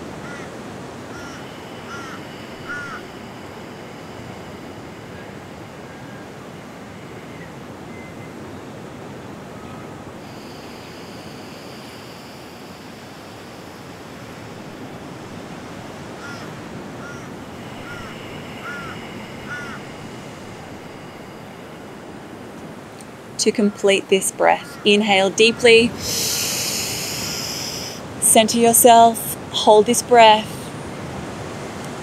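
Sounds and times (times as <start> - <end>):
rushing background noise: 0.0 - 32.0
bird calling: 1.1 - 6.2, 16.1 - 22.6.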